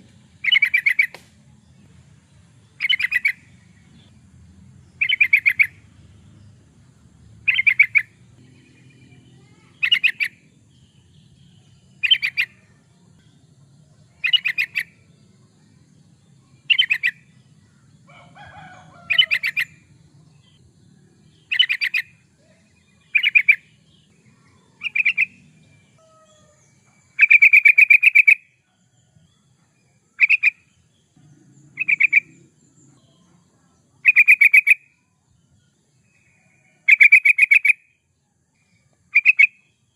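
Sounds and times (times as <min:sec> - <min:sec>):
bird singing chattering phrases: 0:00.4 - 0:01.2, 0:02.6 - 0:13.5, 0:14.1 - 0:17.9, 0:21.2 - 0:28.5, 0:30.0 - 0:34.9, 0:36.8 - 0:37.8.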